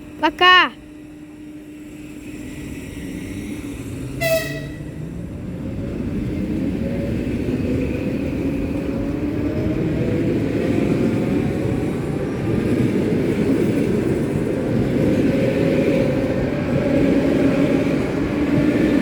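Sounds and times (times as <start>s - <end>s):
train horn toot: 4.2s - 5.0s.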